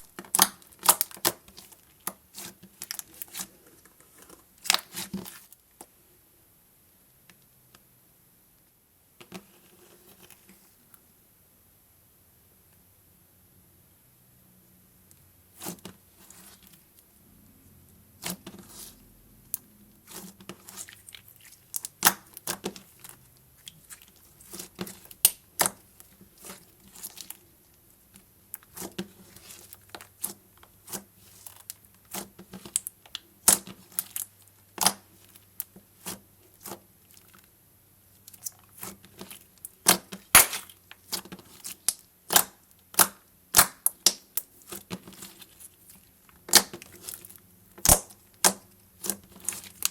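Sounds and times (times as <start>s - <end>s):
slime sticky clicks and pops: 47.8s - 48.6s.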